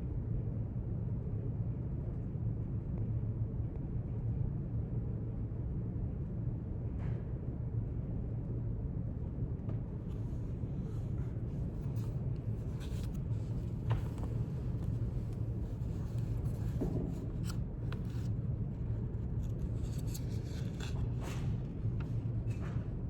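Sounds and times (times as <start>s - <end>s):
steady low hum: 9.8s - 23.0s
paper rustles and pen taps: 11.6s - 22.8s.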